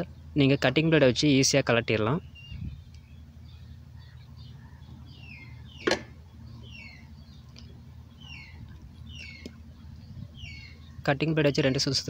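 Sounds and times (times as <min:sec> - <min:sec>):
low steady hum: 0:00.0 - 0:12.0
small bird chirping: 0:02.0 - 0:11.3.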